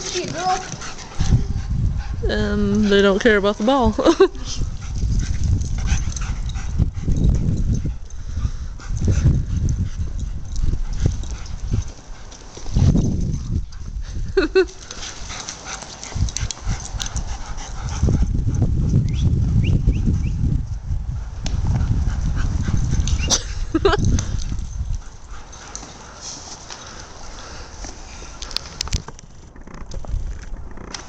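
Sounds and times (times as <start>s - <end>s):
dog playing sounds: 0.0s - 19.0s, 21.6s - 31.0s.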